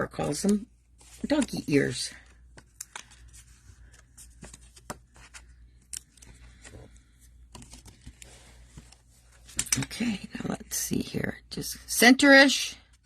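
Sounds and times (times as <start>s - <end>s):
cardstock and tape handling: 0.0s - 10.0s.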